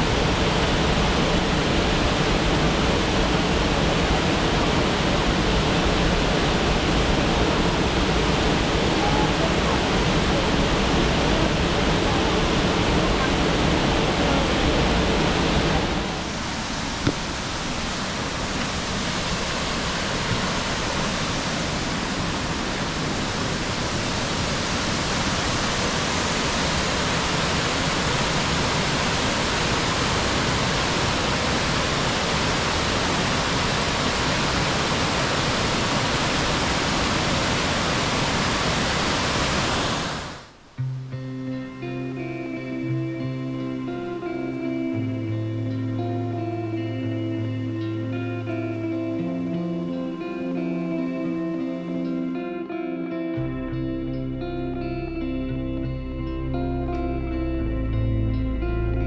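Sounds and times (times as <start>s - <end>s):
waterfall rushing: 0.0s - 40.7s.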